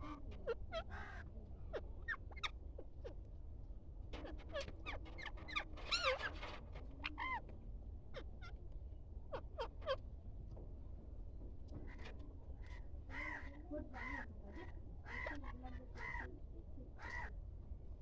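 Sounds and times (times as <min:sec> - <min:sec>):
birds chirping and squawking: 0:04.2 - 0:07.4.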